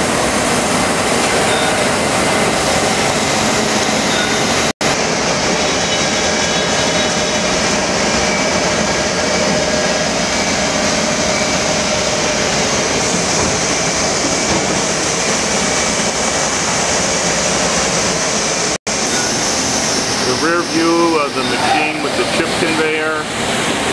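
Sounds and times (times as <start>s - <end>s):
machinery running: 0.0s - 23.9s.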